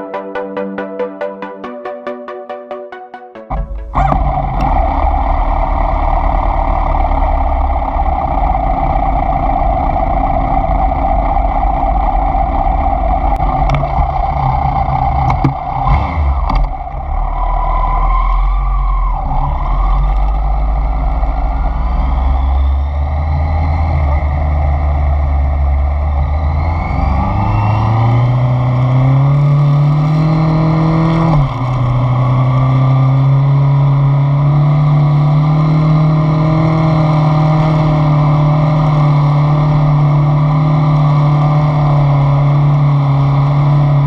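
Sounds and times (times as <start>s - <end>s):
short rising whine: 0.0s - 29.9s
motorcycle engine running: 3.5s - 17.6s
road and wind noise: 3.5s - 44.0s.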